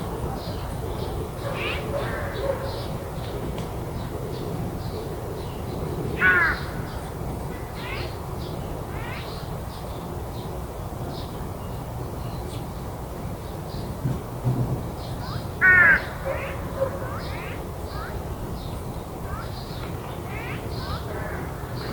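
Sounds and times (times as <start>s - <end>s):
crow cawing loudly: 6.2s - 6.9s, 15.6s - 17.6s, 20.3s - 21.8s.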